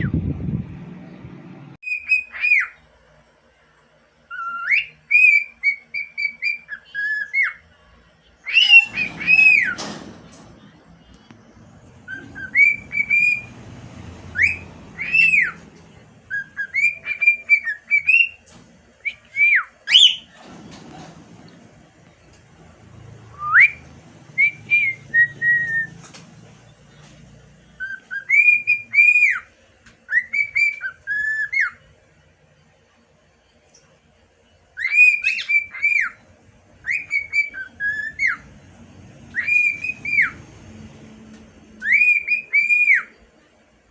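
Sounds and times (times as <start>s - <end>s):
cockatiel whistling a song: 1.8s - 2.8s, 4.3s - 7.6s, 8.4s - 10.0s, 12.0s - 13.7s, 14.3s - 20.4s, 23.3s - 26.1s, 27.7s - 31.9s, 34.7s - 36.2s, 36.8s - 38.5s, 39.3s - 40.4s, 41.8s - 43.2s.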